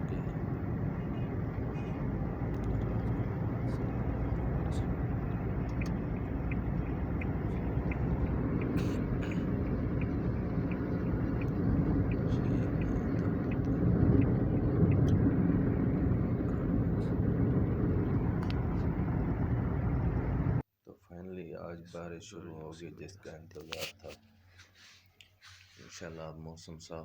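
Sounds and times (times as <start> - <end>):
vehicle engine and road rumble: 0.0 - 20.6
faint light ticks: 1.8 - 15.2, 18.4 - 18.9.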